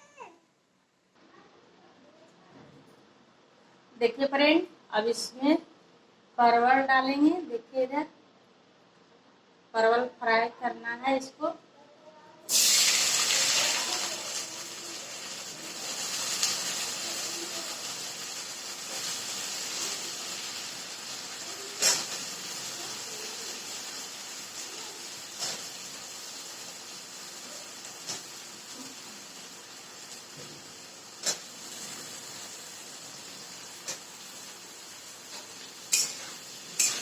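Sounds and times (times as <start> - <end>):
vegetables sizzling in hot oil: 12.5 - 37.0.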